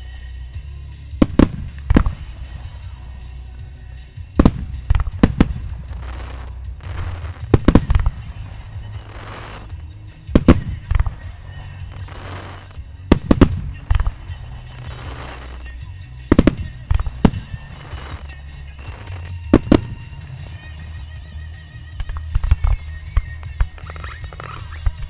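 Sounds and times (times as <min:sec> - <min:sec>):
fireworks hiss: 0:00.0 - 0:20.8
music: 0:00.0 - 0:25.0
fireworks bursting in booms: 0:01.1 - 0:03.4, 0:04.0 - 0:20.9.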